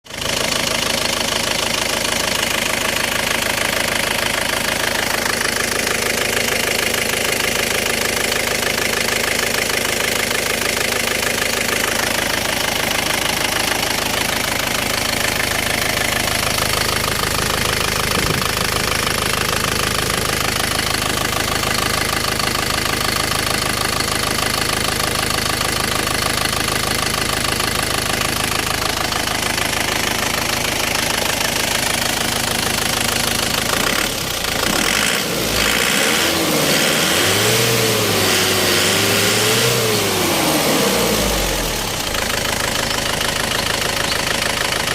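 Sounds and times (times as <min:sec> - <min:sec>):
diesel engine idling with clatter: 0:00.0 - 0:44.9.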